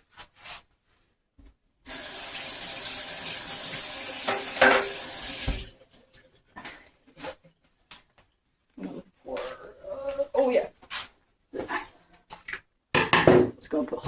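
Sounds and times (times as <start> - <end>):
tap water running into sink: 1.9 - 6.0.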